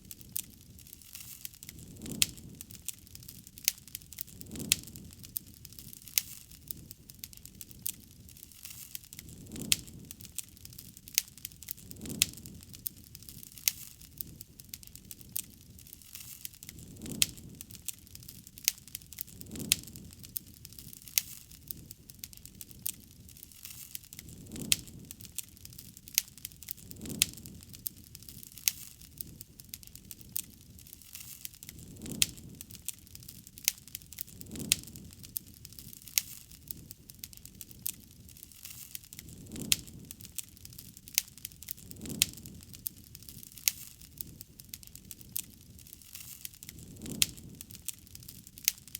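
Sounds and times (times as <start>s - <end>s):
campfire crackling: 0.0s - 48.9s
fire popping and snapping: 0.0s - 48.9s
low rush of flames: 0.0s - 48.9s.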